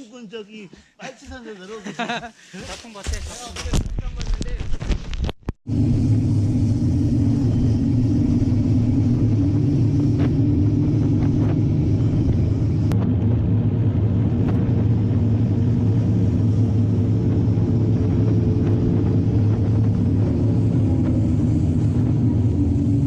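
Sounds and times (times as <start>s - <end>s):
bike tyre noise on trail: 2.5s - 23.0s
wind buffeting microphone: 5.7s - 23.0s.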